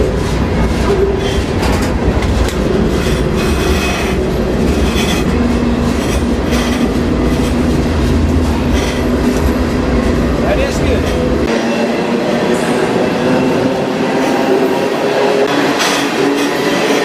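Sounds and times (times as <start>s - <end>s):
freight train rumbling: 0.0s - 17.0s
train cars clanking: 0.0s - 17.0s.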